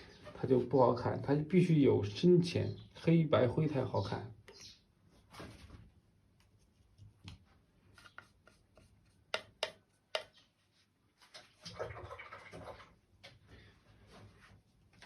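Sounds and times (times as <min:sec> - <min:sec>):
brush rubbing and swishing: 0:06.4 - 0:11.6
paintbrush tapping on palette: 0:08.2 - 0:10.4.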